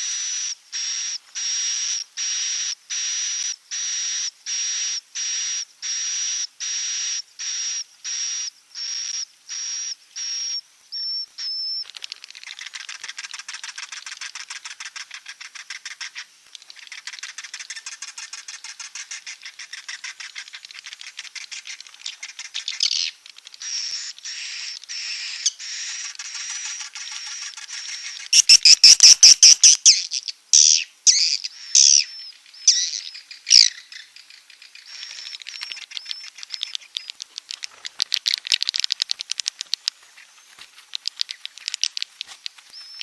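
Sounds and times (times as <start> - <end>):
high bird chirps: 11.0 - 43.0
fast chattering clicks: 11.9 - 43.0.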